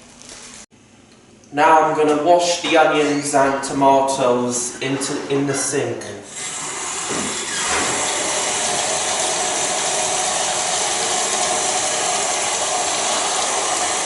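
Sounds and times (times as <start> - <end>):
vegetables being washed: 6.3 - 14.0
tap running into a sink: 7.0 - 14.0.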